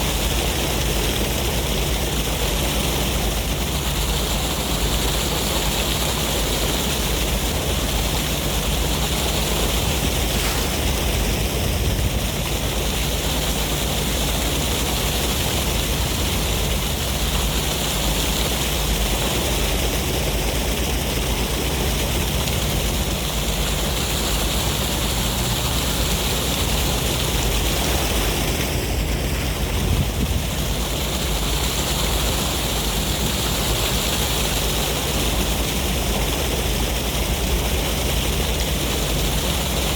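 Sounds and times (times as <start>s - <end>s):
sea wind: 0.0s - 39.9s
ocean surf: 8.1s - 15.2s, 21.1s - 36.0s.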